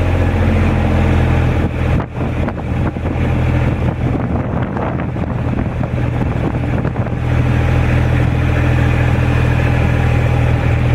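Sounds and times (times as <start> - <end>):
vehicle engine rumbling: 0.0 - 10.9.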